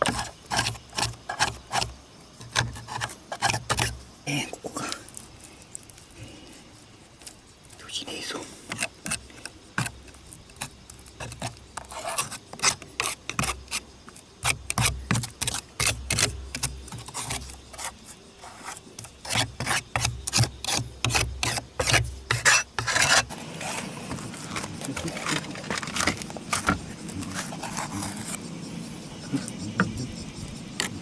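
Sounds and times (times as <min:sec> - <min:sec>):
roof tiles scraping and clicking: 0:00.0 - 0:04.0, 0:08.7 - 0:28.4.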